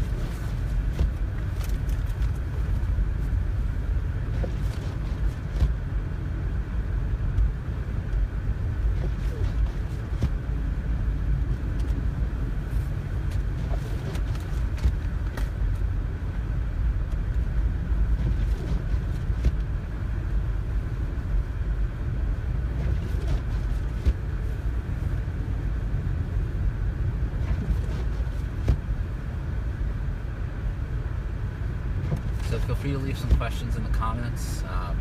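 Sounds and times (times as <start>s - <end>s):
car driving on snowy road: 0.0s - 35.0s.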